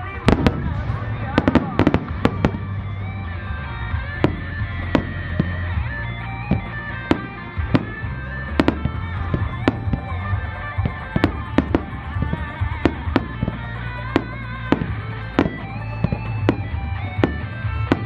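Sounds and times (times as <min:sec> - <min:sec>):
fireworks bursting with sharp bangs: 0:00.0 - 0:18.0
music with long held melody: 0:00.0 - 0:18.0.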